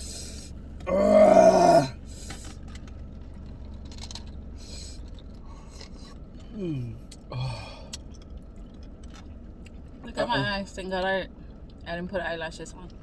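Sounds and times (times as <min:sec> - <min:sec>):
low room hum: 0:00.0 - 0:13.0
person whimpering: 0:00.9 - 0:02.0.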